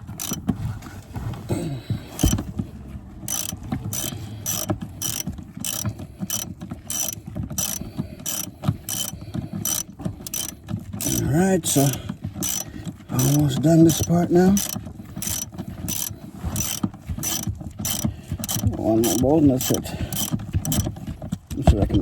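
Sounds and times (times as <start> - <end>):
hand ratchet clicking: 0.0 - 0.5, 2.1 - 2.5, 3.2 - 21.0.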